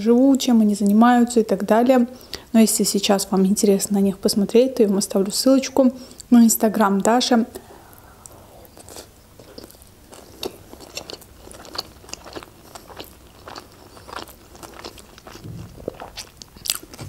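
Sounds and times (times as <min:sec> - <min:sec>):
chewing with crunches: 0:08.2 - 0:17.0.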